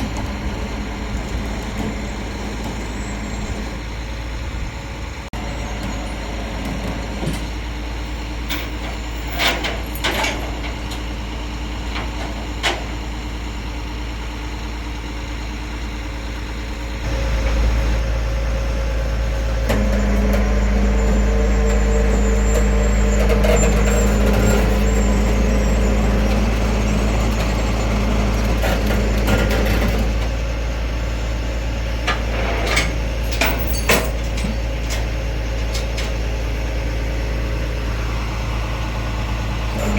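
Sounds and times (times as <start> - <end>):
tow truck engine idling: 0.0 - 39.9
steady whine: 17.0 - 31.3.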